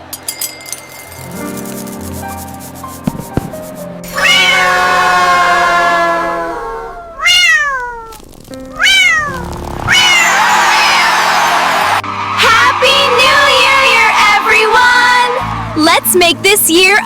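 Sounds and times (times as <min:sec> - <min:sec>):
background music: 0:00.2 - 0:05.5, 0:09.4 - 0:17.0
cat meowing: 0:04.2 - 0:10.3.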